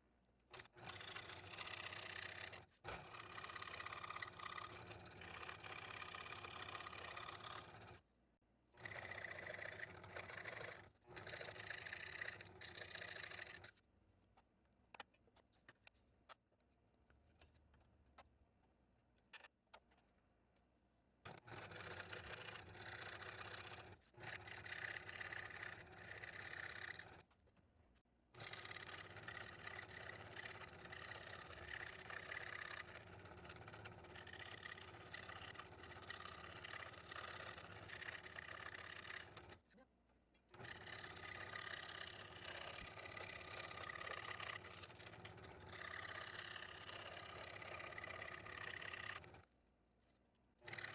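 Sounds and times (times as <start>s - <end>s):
scroll saw cutting plywood: 0.6s - 8.0s, 21.3s - 27.3s, 28.4s - 39.6s, 40.5s - 49.5s, 50.6s - 50.9s.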